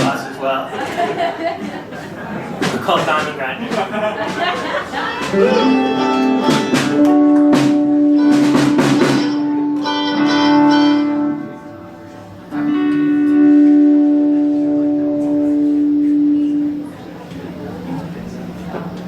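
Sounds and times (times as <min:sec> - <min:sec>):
live indie band playing: 0:00.0 - 0:00.2, 0:00.8 - 0:18.2
drum hits: 0:02.6 - 0:11.2
ringing guitar notes: 0:05.0 - 0:17.2.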